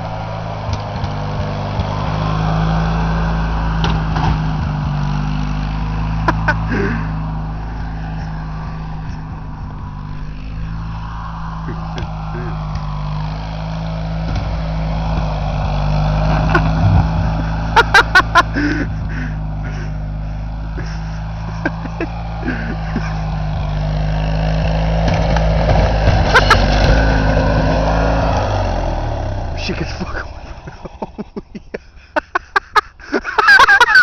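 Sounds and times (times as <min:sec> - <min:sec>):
lawn tractor engine running: 0:00.0 - 0:34.0
sharp knocks and clatters: 0:03.8 - 0:05.0.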